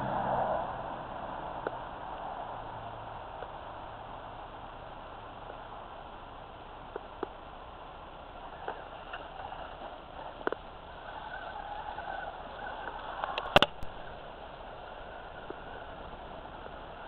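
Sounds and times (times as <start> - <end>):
sharp clatter: 8.5 - 14.2.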